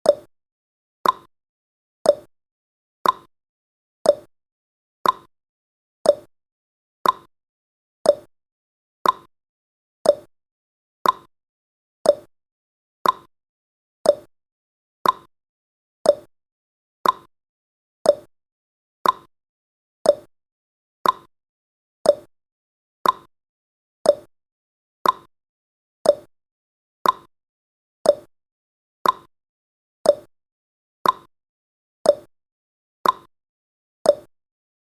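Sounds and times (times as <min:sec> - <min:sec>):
timer ticking: 0:00.0 - 0:00.3, 0:01.0 - 0:01.3, 0:02.0 - 0:02.3, 0:03.0 - 0:03.3, 0:04.0 - 0:04.3, 0:05.0 - 0:05.3, 0:06.0 - 0:06.3, 0:07.0 - 0:07.3, 0:08.0 - 0:08.3, 0:09.0 - 0:09.3, 0:10.0 - 0:10.3, 0:11.0 - 0:11.3, 0:12.0 - 0:12.3, 0:13.0 - 0:13.3, 0:14.0 - 0:14.3, 0:15.0 - 0:15.3, 0:16.0 - 0:16.3, 0:17.0 - 0:17.3, 0:18.0 - 0:18.3, 0:19.0 - 0:19.3, 0:20.0 - 0:20.3, 0:21.0 - 0:21.3, 0:22.0 - 0:22.3, 0:23.0 - 0:23.3, 0:24.0 - 0:24.3, 0:25.0 - 0:25.3, 0:26.0 - 0:26.3, 0:27.0 - 0:27.3, 0:28.0 - 0:28.3, 0:29.0 - 0:29.3, 0:30.0 - 0:30.3, 0:31.0 - 0:31.3, 0:32.0 - 0:32.3, 0:33.0 - 0:33.3, 0:34.1 - 0:34.3.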